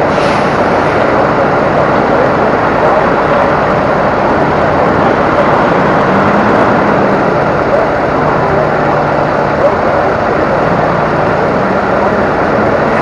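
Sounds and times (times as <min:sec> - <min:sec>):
road noise: 0:00.0 - 0:13.0
truck engine droning: 0:00.0 - 0:13.0.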